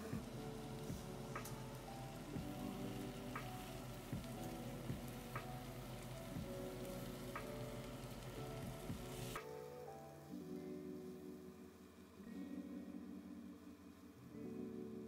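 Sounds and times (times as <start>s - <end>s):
vegetables sizzling in a pan: 0.0s - 9.4s
soft background music: 0.0s - 15.0s.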